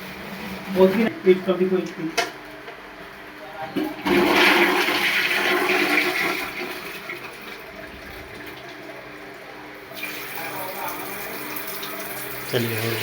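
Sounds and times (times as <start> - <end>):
toilet flushing: 3.8 - 13.0.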